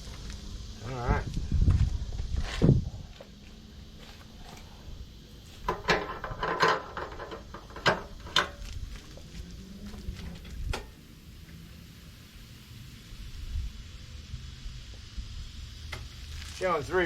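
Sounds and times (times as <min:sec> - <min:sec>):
objects knocking and clicking: 0:05.6 - 0:08.6.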